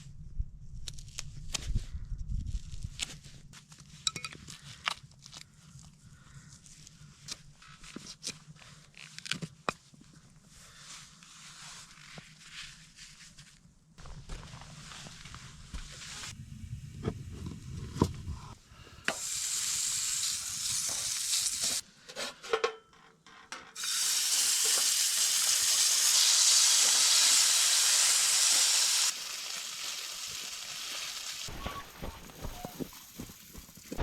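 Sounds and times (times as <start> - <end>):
food sizzling in a pan: 19.1 - 21.8, 23.8 - 33.6.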